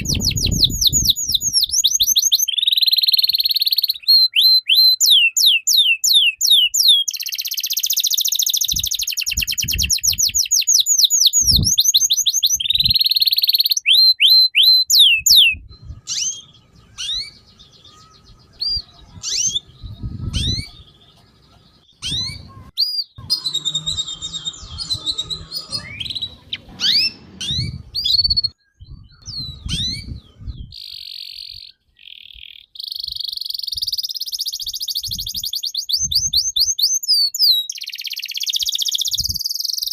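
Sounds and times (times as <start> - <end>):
songbird singing: 0.0 - 39.9
low thumps and rumbling: 23.8 - 30.7.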